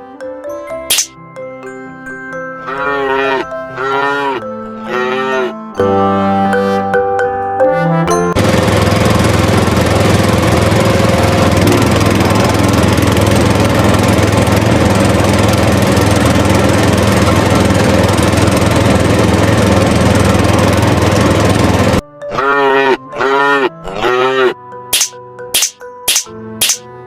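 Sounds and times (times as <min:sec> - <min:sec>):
tractor engine running: 0:08.1 - 0:22.0.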